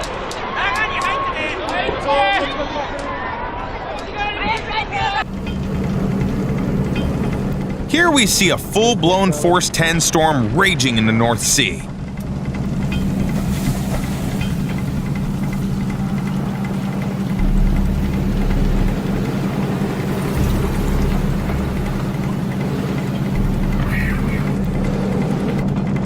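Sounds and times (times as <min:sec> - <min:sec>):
heavy low rumbles: 0:05.2 - 0:26.0
ship engine droning: 0:05.2 - 0:26.0
storm rushing at sea: 0:05.2 - 0:26.0.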